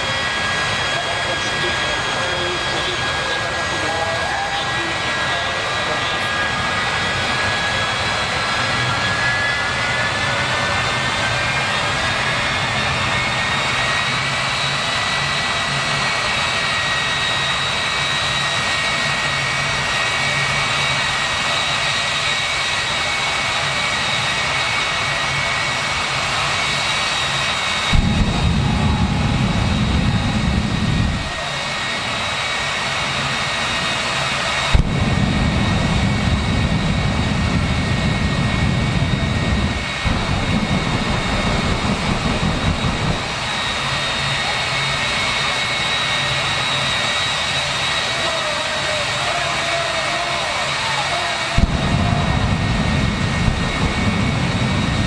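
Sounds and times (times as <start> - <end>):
turbine engine whining: 0.0 - 55.0
loud deep rumble: 27.9 - 31.6, 34.7 - 44.4, 51.6 - 55.0.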